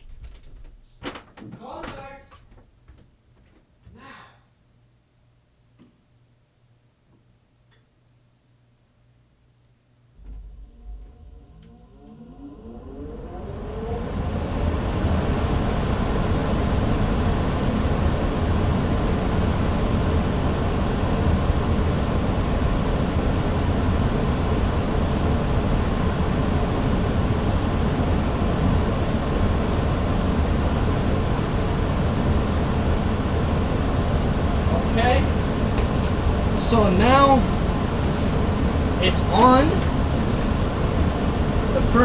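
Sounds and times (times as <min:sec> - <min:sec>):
furnace blower fan running: 0:09.9 - 0:42.0.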